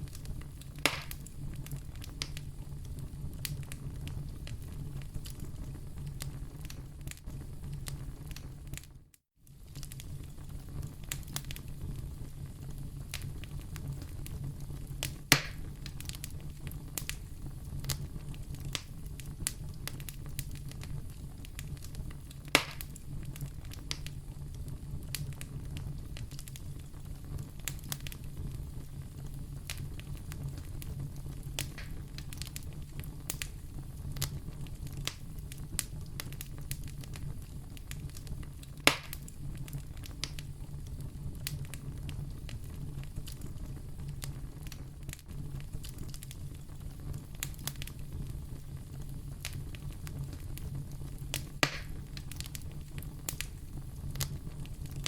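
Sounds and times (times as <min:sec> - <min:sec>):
loud sharp fire pops: 0:00.0 - 0:02.5, 0:15.0 - 0:17.2, 0:17.8 - 0:24.2, 0:29.6 - 0:40.5, 0:49.4 - 0:55.0
low rumble of flames: 0:00.0 - 0:55.0
small fire crackles: 0:00.0 - 0:55.0.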